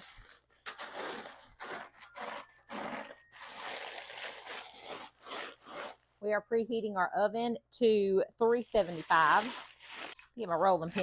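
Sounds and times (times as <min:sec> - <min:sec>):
cereal crunching in plastic bag: 0:00.1 - 0:06.0, 0:08.8 - 0:10.2.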